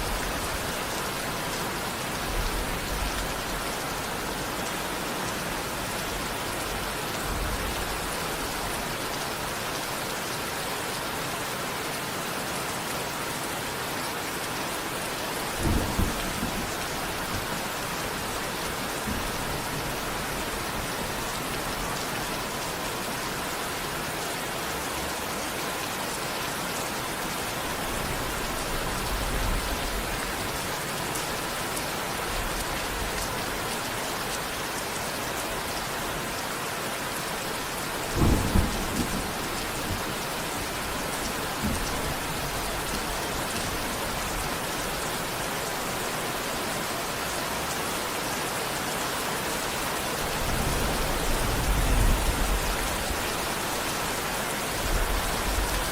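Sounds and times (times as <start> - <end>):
steady rain: 0.0 - 55.9
thunder rumble: 15.6 - 20.9, 38.0 - 44.4, 50.2 - 53.4.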